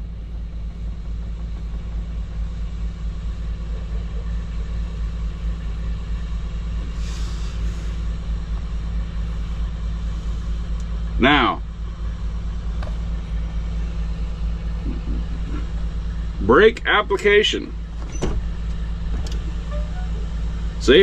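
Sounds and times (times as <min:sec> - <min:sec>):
diesel truck engine idling: 0:00.0 - 0:21.0
air hiss: 0:06.9 - 0:08.0.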